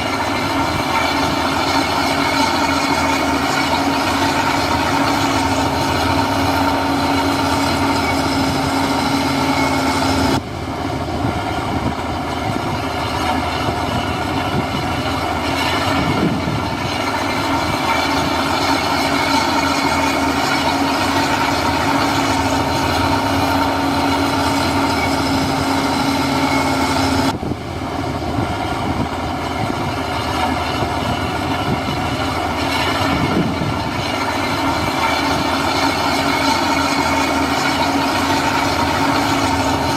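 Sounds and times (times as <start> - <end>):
heavy diesel engine running: 0.0 - 39.9
steady whining tones: 0.0 - 39.9.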